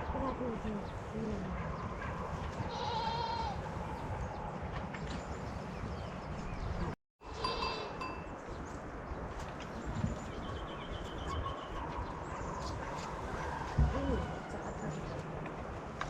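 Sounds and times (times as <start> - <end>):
outdoor background noise: 0.0 - 16.0
livestock bells clinking: 7.2 - 8.4.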